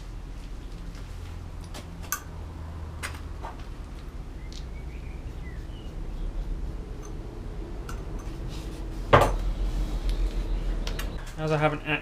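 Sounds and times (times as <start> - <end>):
low steady hum: 0.0 - 12.0
faint bird chirp: 4.3 - 6.5.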